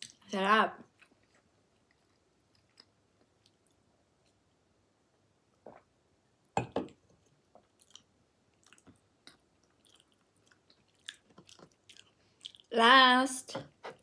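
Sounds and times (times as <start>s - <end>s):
soft chewing: 0.0s - 4.7s, 7.0s - 12.7s
wet lip and tongue clicks: 7.6s - 12.7s.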